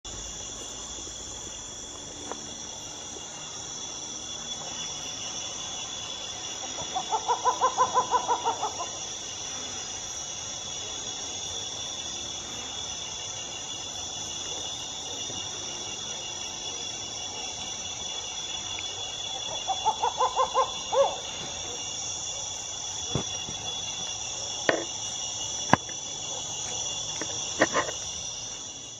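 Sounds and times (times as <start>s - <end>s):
insects chorus: 0.0s - 28.9s
rapid pulsed animal calls: 5.5s - 9.5s, 18.9s - 28.9s.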